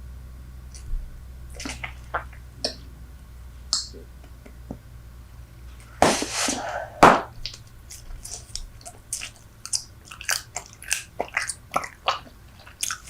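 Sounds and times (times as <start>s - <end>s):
bubble gum chewing: 1.5s - 2.8s, 7.4s - 13.0s.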